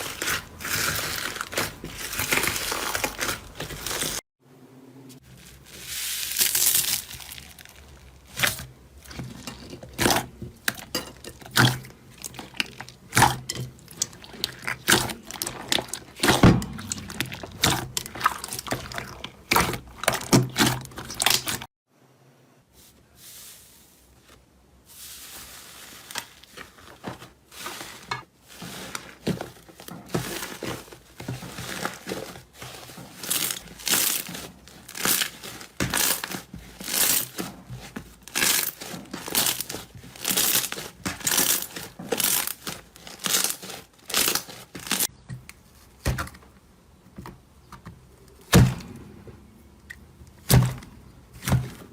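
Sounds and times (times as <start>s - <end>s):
slime crackling and popping: 6.2s - 8.6s, 9.2s - 21.7s, 31.6s - 37.6s, 38.2s - 45.1s.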